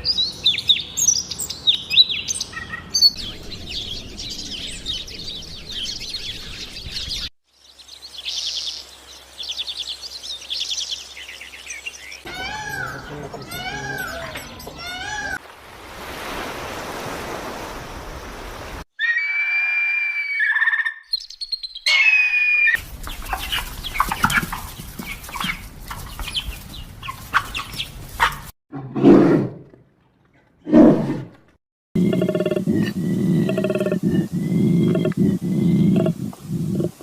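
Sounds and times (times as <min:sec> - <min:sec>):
birds calling and chirping: 0:00.0 - 0:15.4, 0:19.0 - 0:28.5, 0:32.0 - 0:37.0
deep animal calls: 0:12.3 - 0:15.4, 0:32.0 - 0:37.0
hissing noise: 0:32.2 - 0:37.0.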